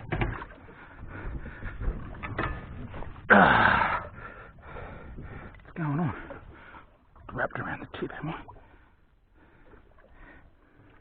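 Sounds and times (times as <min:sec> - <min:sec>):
breathy vocal grunt: 0:03.3 - 0:04.1.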